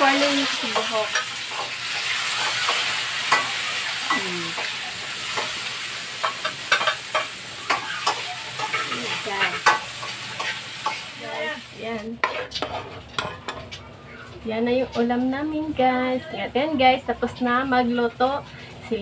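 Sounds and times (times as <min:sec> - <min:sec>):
food sizzling in a wok: 0:00.0 - 0:15.7
spatula scraping and knocking pan: 0:00.1 - 0:11.1, 0:12.2 - 0:13.8.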